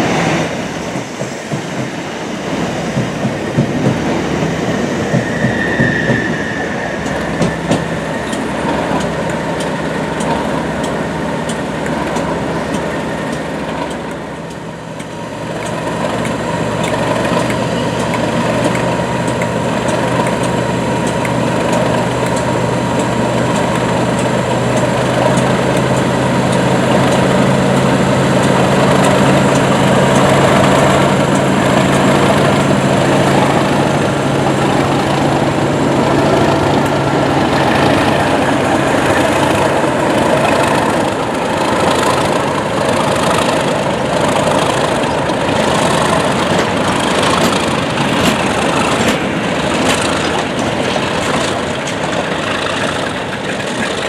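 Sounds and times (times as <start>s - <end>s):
diesel locomotive engine drone: 0.0s - 54.0s
rushing noise with regular clatter: 0.0s - 54.0s.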